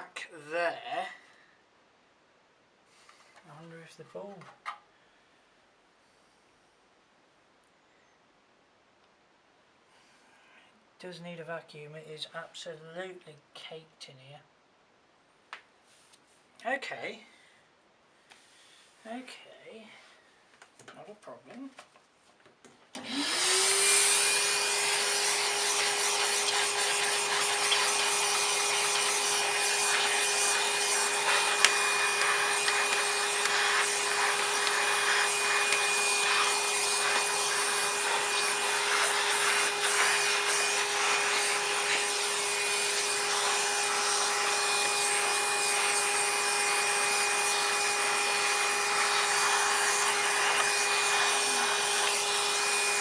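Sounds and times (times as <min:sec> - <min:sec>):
vacuum cleaner motor whine: 0:23.0 - 0:53.0
nozzle rubbing over surfaces: 0:24.3 - 0:53.0.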